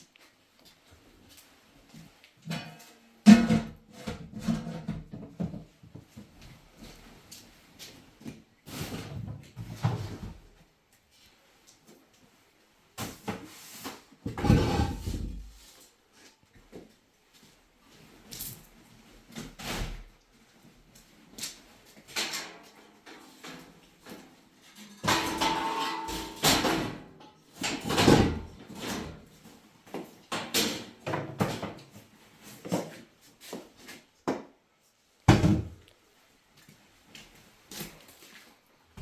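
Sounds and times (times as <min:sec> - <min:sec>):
knocks and clattering: 0:25.0 - 0:27.0.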